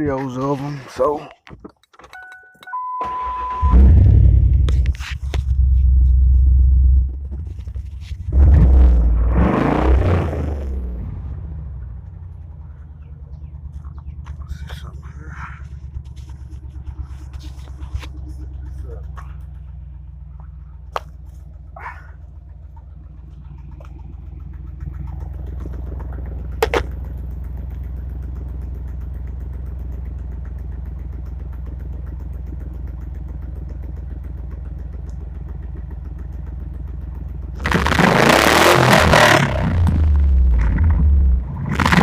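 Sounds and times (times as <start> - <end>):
engine idling with deep exhaust: 0.0 - 1.5, 3.6 - 42.0
engine revving hard: 8.3 - 11.5, 37.6 - 42.0.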